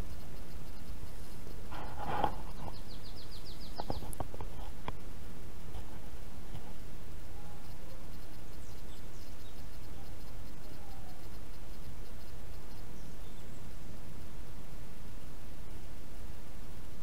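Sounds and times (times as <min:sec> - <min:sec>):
birds whistling faintly: 0:00.0 - 0:05.0, 0:05.8 - 0:16.0
steady hiss: 0:00.0 - 0:17.0.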